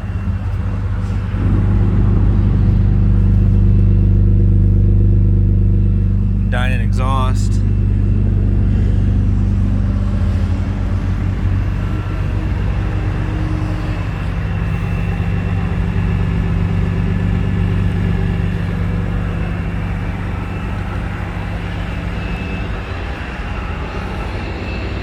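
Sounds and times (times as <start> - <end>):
car exhaust idling: 0.0 - 23.3.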